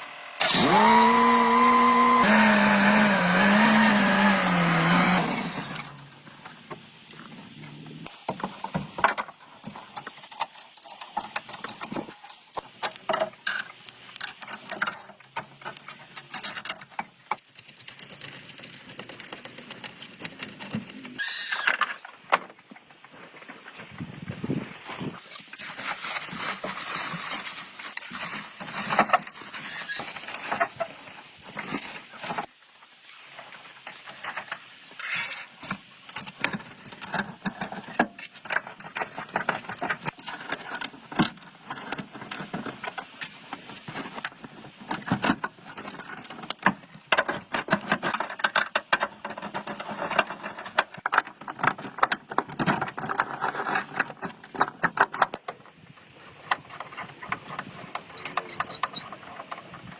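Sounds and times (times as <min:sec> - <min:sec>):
rapid clicking and rattling: 0:10.0 - 0:21.2.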